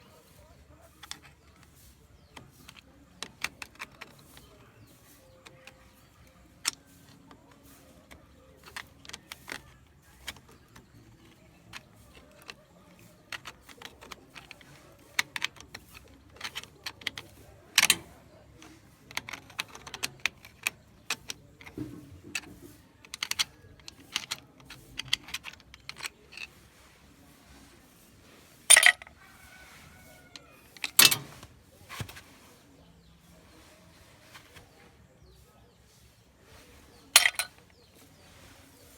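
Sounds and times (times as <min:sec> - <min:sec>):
metal parts and tools clinking: 0:00.2 - 0:26.7, 0:28.6 - 0:29.2, 0:30.7 - 0:32.2, 0:37.1 - 0:38.1.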